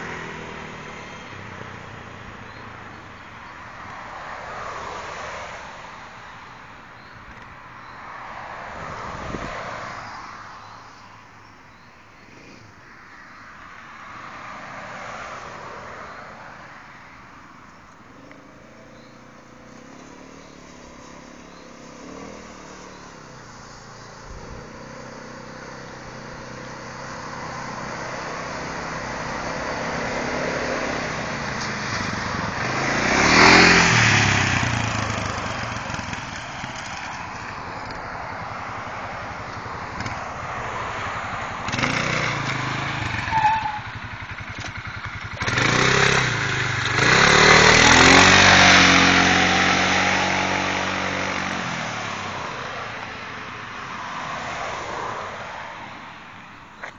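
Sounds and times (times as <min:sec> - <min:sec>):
quad bike engine revving: 0:24.3 - 0:37.4, 0:41.4 - 0:53.0.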